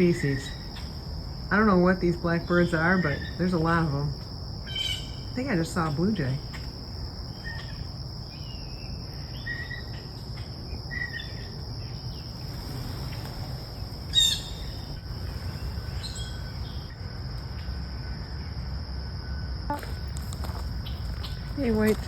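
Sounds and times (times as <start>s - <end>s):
birds chirping: 0.0s - 16.9s
insects droning: 0.0s - 22.0s
harsh bird call: 14.1s - 14.9s.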